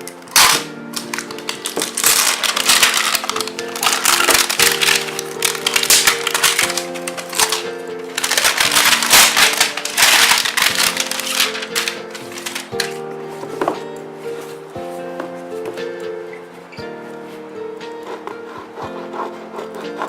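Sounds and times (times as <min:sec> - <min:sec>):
calm background music: 0:00.0 - 0:20.0
packaging crinkling: 0:00.3 - 0:13.0.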